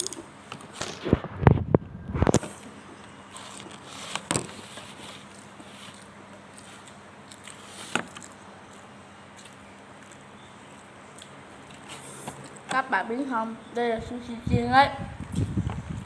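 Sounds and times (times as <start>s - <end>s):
quiet chewing: 5.2s - 12.6s.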